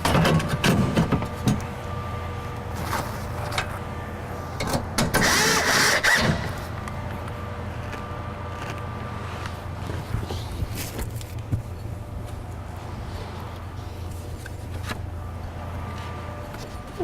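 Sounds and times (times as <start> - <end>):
knocks and clicks of car parts: 0.0 - 1.7
faint steady hum: 0.0 - 17.0.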